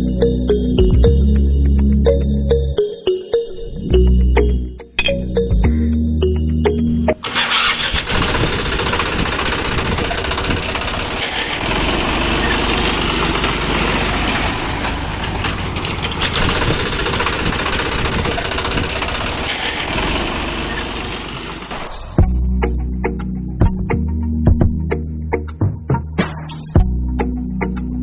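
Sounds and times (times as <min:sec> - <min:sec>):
small motor rattling: 0:07.2 - 0:22.0.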